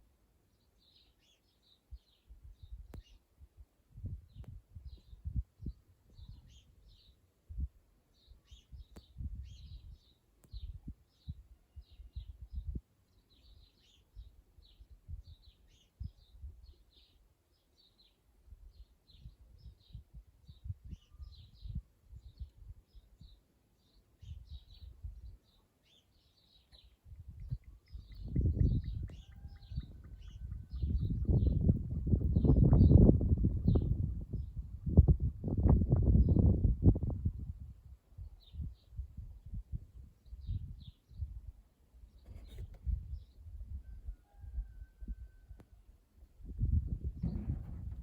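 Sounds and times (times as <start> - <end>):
small birds chirping: 0.5 - 3.3, 4.2 - 7.3, 8.1 - 35.0, 42.0 - 43.5
low thuds and rumbles: 47.0 - 48.0.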